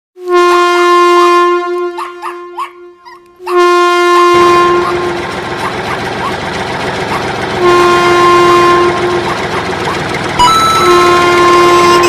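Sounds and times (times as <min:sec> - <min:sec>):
short rising reed notes: 0:02.9 - 0:12.0
rumbling noise: 0:03.4 - 0:12.0
pungi reedy drone: 0:07.1 - 0:12.0.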